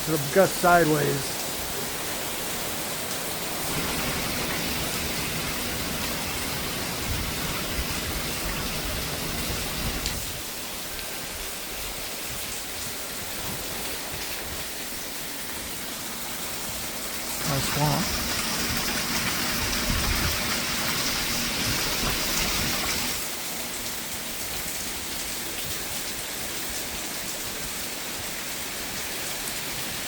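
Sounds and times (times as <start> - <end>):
heavy rain pouring: 0.0 - 30.0
wind gusts rumbling: 3.5 - 10.5, 18.0 - 23.2.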